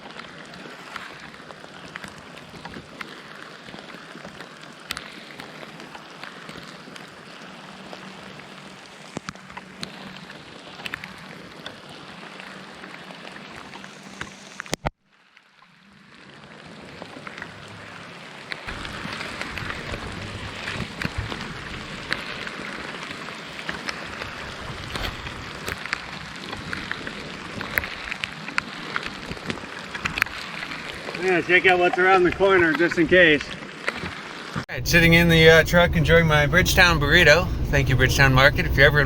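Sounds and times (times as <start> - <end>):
steady rain falling: 15.2 - 31.6
raindrops ticking: 18.7 - 22.7.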